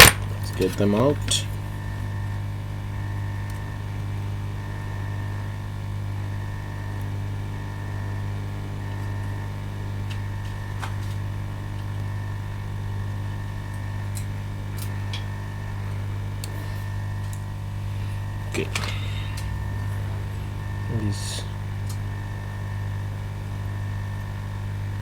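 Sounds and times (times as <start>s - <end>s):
low hum of bench equipment: 8.6s - 25.0s.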